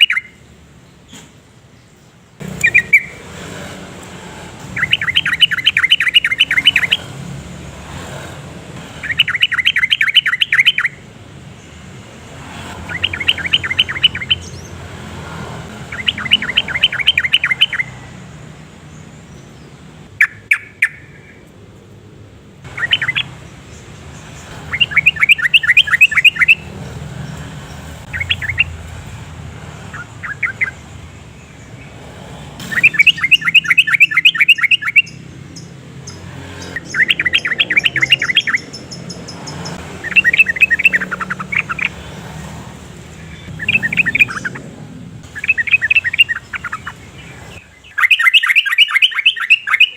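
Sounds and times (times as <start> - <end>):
bird singing bubbly phrases: 0.0 - 0.4, 2.4 - 3.2, 4.7 - 7.1, 8.9 - 11.0, 12.8 - 14.7, 15.7 - 18.1, 20.2 - 21.4, 22.7 - 29.2, 29.8 - 31.2, 32.7 - 42.5, 43.2 - 49.9.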